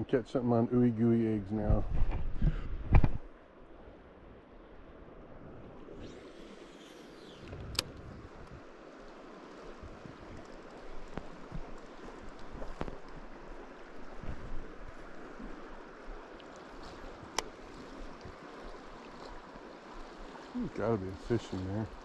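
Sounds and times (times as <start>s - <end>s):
river water flowing: 3.3s - 22.0s
sharp clicks: 7.2s - 8.6s.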